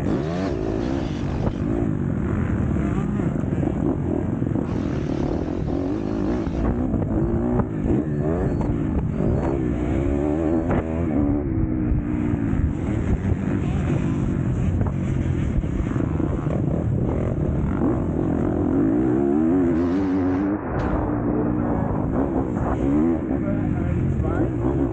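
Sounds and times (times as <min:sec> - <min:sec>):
motocross bike engine revving: 0:00.0 - 0:24.9.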